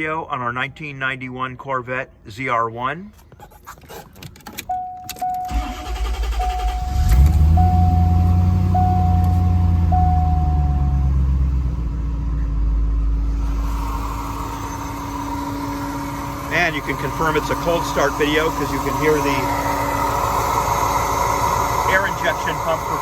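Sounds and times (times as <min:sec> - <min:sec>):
warning chime beeping: 0:04.7 - 0:11.5
starter cranking engine: 0:05.4 - 0:10.2, 0:13.2 - 0:23.0
car engine fast idle: 0:05.5 - 0:23.0.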